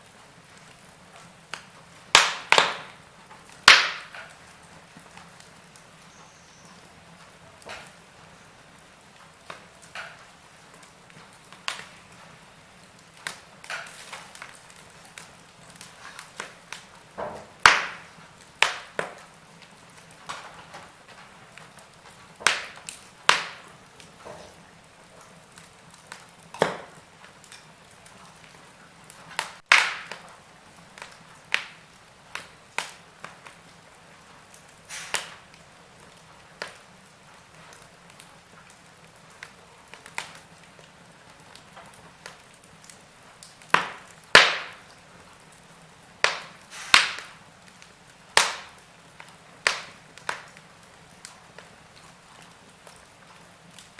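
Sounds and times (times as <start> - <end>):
faint steady hiss: 0.0 - 53.9
wood fire crackling: 0.0 - 53.9.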